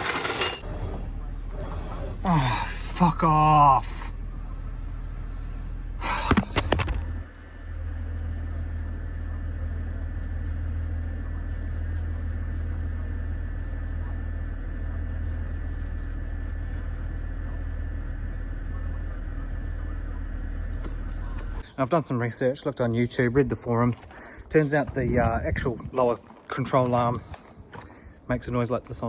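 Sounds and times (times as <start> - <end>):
car engine idling: 0.0 - 21.6.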